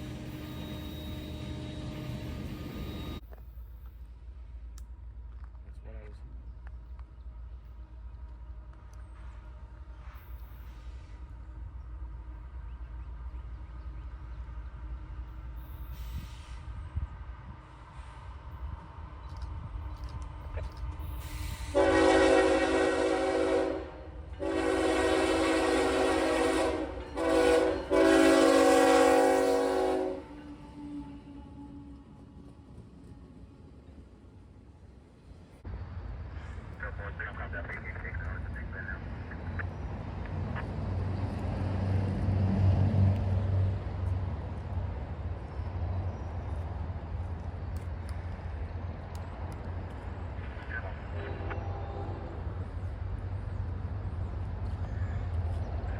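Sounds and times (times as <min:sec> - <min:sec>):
low rumble of passing train: 0:00.0 - 0:55.9
locomotive air horn chord: 0:21.6 - 0:32.1.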